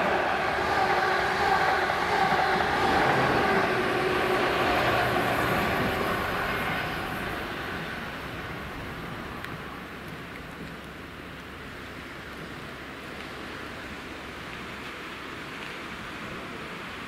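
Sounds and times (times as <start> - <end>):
diesel train passing: 0.0 - 10.0.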